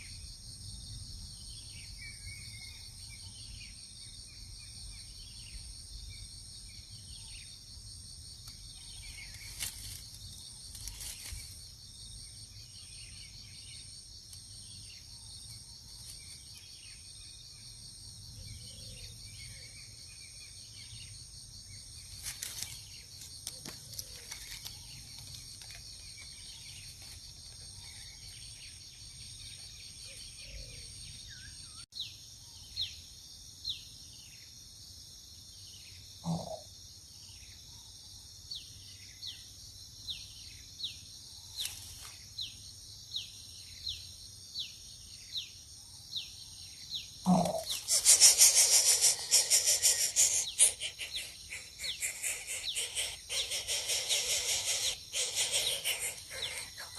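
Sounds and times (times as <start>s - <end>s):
high-pitched insect chorus: 0.0s - 56.9s
short bird chirps: 47.3s - 56.9s.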